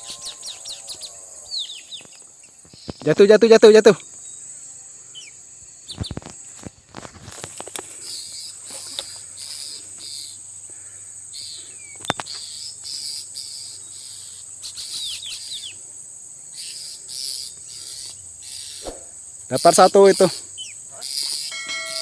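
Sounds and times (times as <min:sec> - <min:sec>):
bird chirps: 0:00.0 - 0:03.1, 0:11.4 - 0:15.8, 0:16.5 - 0:22.0
insect pulsing chirp: 0:00.0 - 0:22.0
insects droning: 0:00.0 - 0:22.0.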